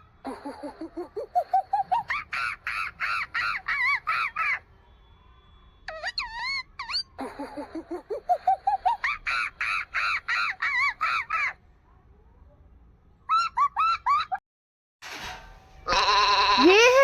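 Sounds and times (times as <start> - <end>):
monkey hooting and screaming: 0.3 - 4.7, 5.9 - 11.6, 13.3 - 14.4.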